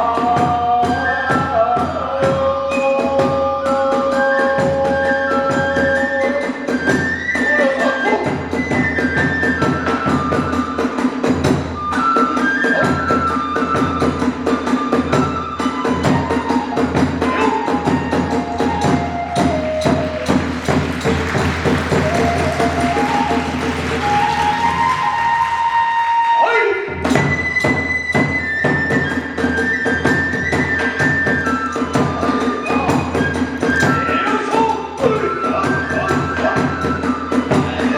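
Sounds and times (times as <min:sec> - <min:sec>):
bamboo flute melody: 0:00.0 - 0:37.9
drum strikes: 0:12.7 - 0:25.4, 0:26.9 - 0:37.9.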